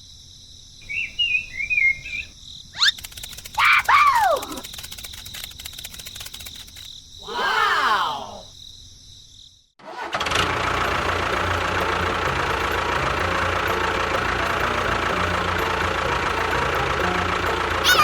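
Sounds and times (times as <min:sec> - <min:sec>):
engine-like motor running: 0:03.0 - 0:03.6, 0:09.8 - 0:18.0.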